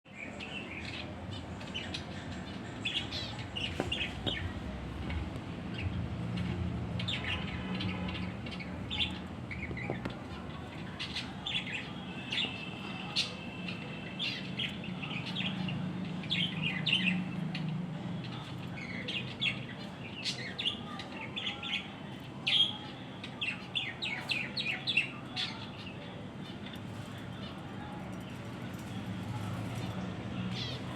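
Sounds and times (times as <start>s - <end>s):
small birds chirping: 0.1s - 30.9s.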